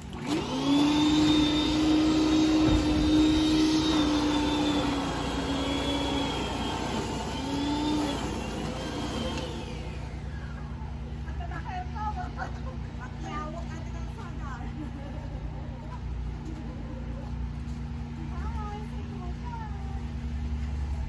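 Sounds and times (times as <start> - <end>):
motor running: 0.0 - 11.3.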